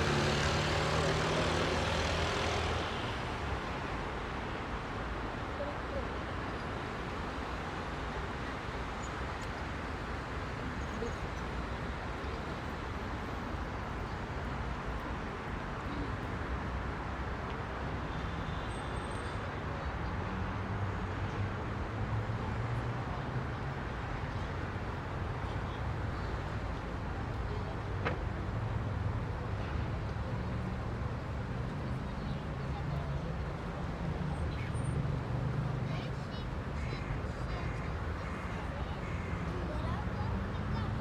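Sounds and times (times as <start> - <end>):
heavy vehicle engine: 0.0 - 3.4
dense road traffic: 0.0 - 41.0.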